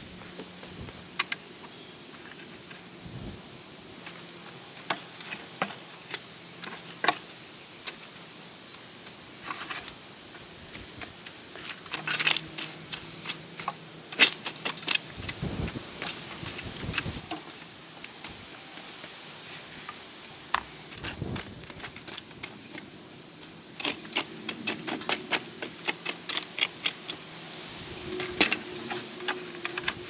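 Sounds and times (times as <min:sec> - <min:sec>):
clicks scrapes and knocks of hand work: 0:10.8 - 0:15.4, 0:20.6 - 0:22.9, 0:23.8 - 0:27.2.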